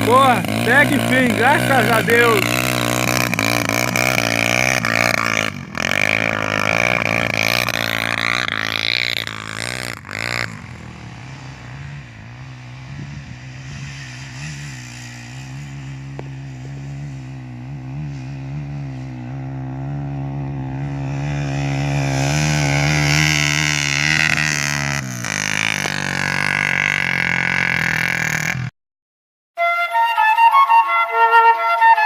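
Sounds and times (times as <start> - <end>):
motorcycle engine revving and idling: 0.0 - 28.7.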